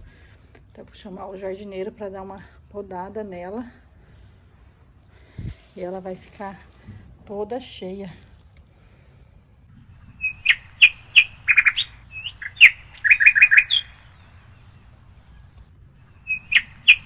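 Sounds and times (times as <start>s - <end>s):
songbird singing: 9.7s - 17.0s.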